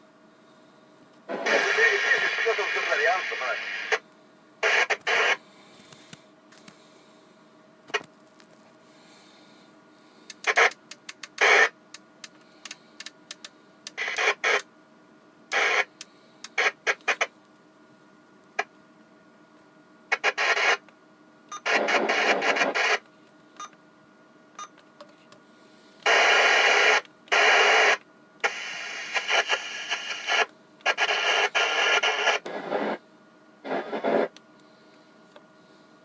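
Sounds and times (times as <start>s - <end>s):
radio static bursts: 1.3s - 4.0s, 4.6s - 5.4s, 10.3s - 11.8s, 12.6s - 14.7s, 15.5s - 17.3s, 20.1s - 20.8s, 21.6s - 23.0s, 26.1s - 33.0s, 33.6s - 34.4s.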